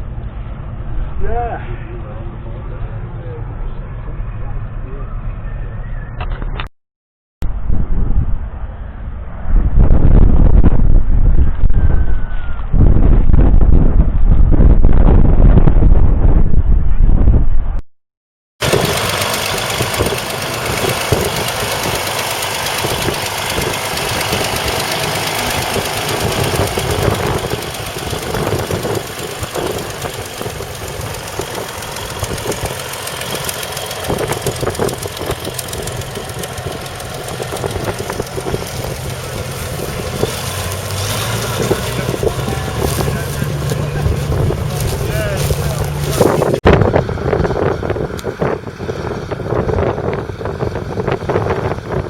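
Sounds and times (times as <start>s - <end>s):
tractor diesel engine running: 18.6s - 52.0s.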